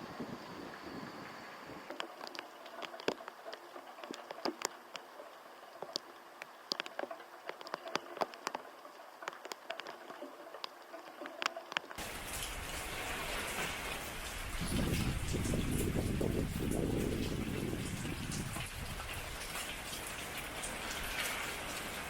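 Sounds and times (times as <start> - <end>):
heavy rain hiss: 0.0 - 3.0, 12.0 - 22.0
raindrops ticking on hard surface: 1.9 - 22.0.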